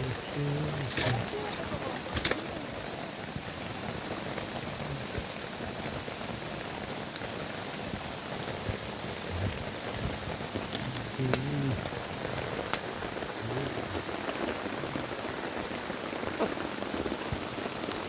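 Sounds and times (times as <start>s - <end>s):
steady rain falling: 0.0s - 18.0s
sharp crack: 0.7s - 3.0s.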